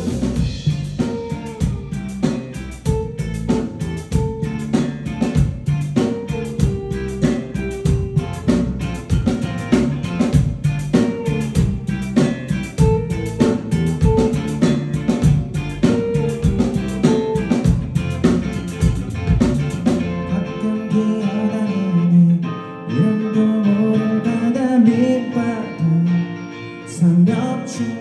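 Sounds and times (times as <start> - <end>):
drum kit beat: 0.0 - 20.1
electric guitar: 0.0 - 28.0.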